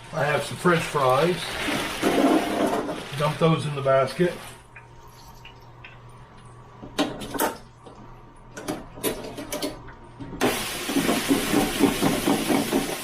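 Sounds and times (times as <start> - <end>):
fries sizzling in hot oil: 0.0 - 4.6, 10.4 - 13.0.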